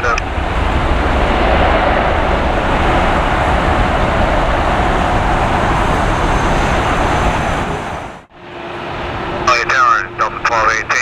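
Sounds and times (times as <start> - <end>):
airliner jet engines roaring: 0.0 - 11.0.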